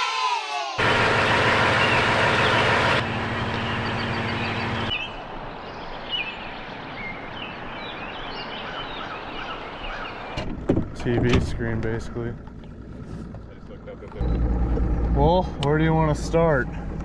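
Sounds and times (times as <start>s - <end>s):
low mechanical hum: 0.8s - 5.0s
birds chirping: 0.8s - 10.4s.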